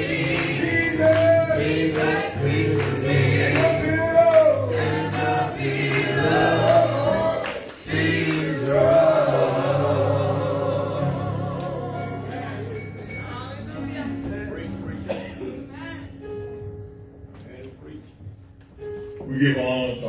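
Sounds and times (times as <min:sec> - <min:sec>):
gospel choir singing: 0:00.0 - 0:13.7.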